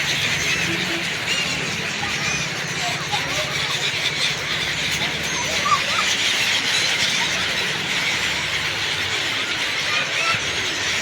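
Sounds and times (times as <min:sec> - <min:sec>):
flock of birds chirping: 0:00.0 - 0:11.0.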